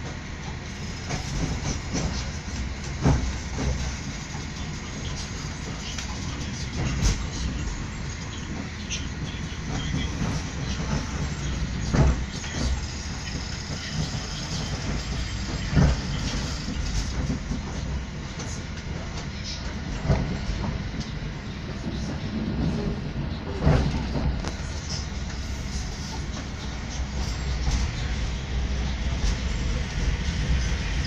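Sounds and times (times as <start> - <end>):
train carriage rumbling on rails: 0.0 - 31.0
wheels knocking on track: 8.3 - 31.0.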